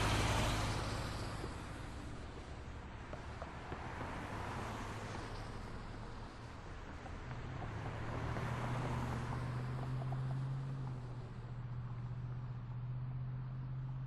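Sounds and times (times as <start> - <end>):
heavy vehicle engine drone: 0.0 - 3.0
passing cars: 0.0 - 14.0.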